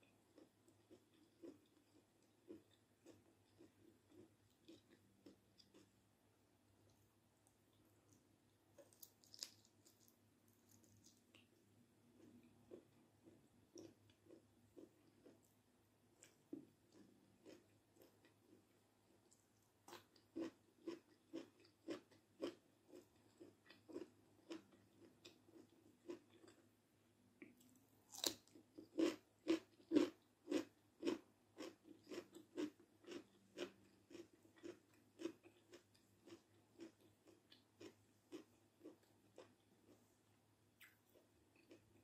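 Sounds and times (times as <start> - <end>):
wet chewing of food: 0.3 - 6.0, 8.8 - 11.6, 16.2 - 18.6, 19.2 - 26.6, 27.4 - 40.1.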